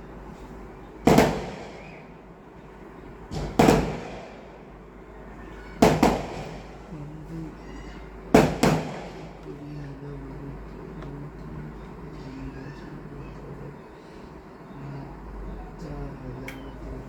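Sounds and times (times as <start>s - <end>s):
sharp knocks: 3.3s - 4.3s.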